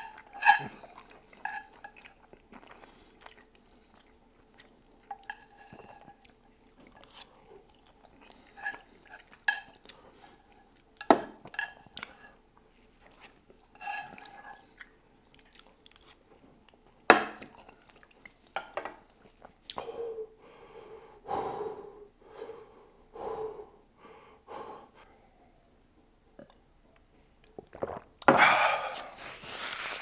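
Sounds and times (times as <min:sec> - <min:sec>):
chewing noodles: 0:00.0 - 0:11.0, 0:13.0 - 0:16.8.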